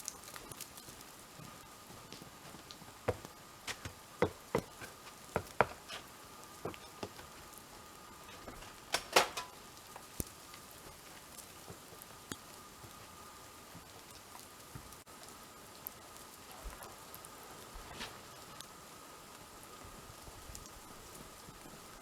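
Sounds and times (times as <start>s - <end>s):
water dripping from trees: 0.0s - 22.0s.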